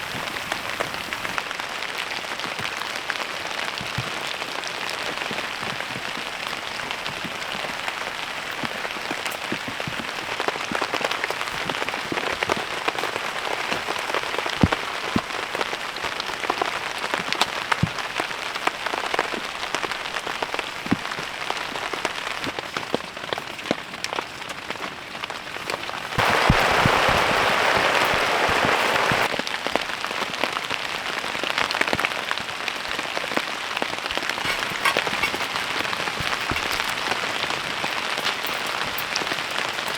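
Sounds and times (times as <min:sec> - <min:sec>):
rain on a tarp and tent: 0:00.0 - 0:39.9
loud even hiss: 0:26.2 - 0:29.3.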